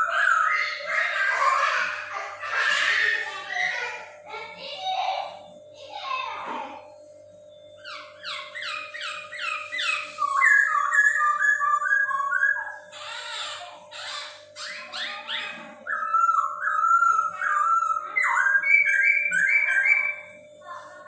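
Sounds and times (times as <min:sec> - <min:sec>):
bird singing whistled notes: 0:07.8 - 0:12.8, 0:14.6 - 0:20.4
short harsh bird notes: 0:07.9 - 0:11.4.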